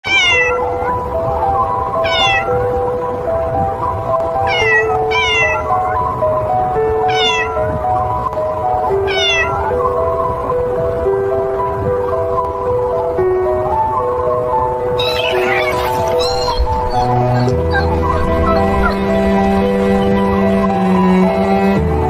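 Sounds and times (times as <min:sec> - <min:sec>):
cat meowing: 0:00.0 - 0:01.2, 0:02.0 - 0:02.6, 0:04.4 - 0:06.2, 0:07.0 - 0:07.8, 0:08.9 - 0:09.8, 0:15.0 - 0:19.8
slow sustained background music: 0:00.5 - 0:22.0.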